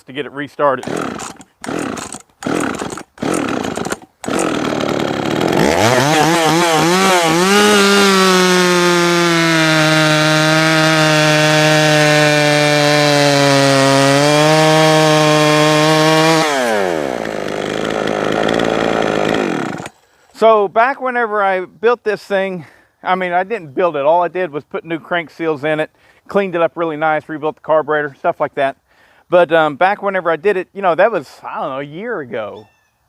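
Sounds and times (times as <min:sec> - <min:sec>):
chainsaw pull-starting and revving: 0:00.8 - 0:20.0.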